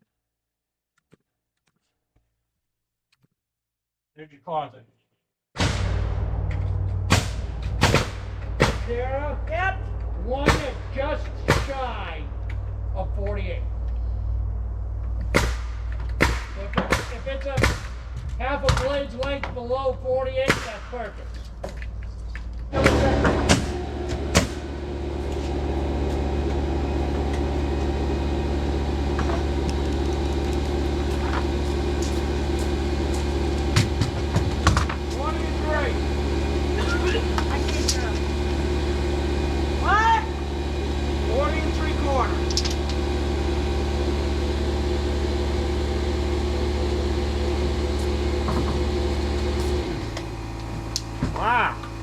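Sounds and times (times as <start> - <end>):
sharp knocks: 5.6 - 8.9, 10.4 - 11.8, 15.2 - 19.5
motor humming: 22.4 - 52.0.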